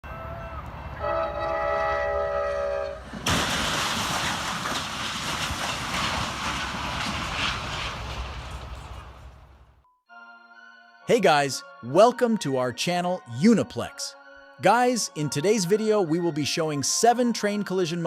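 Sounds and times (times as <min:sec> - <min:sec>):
train horn chord: 0:00.1 - 0:03.1
train rumbling: 0:00.1 - 0:09.8
loud crash: 0:03.0 - 0:09.8.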